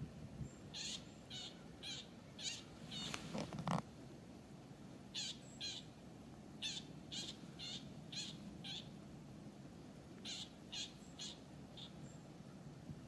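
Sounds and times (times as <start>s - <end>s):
bird calling high calls: 0.7s - 3.2s, 5.1s - 5.9s, 6.6s - 8.9s, 10.2s - 12.0s.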